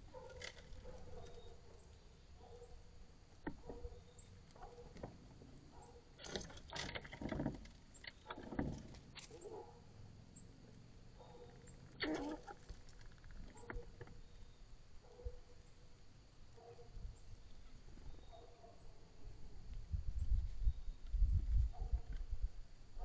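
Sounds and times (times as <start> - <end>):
faint bird calls: 11.2 - 15.4.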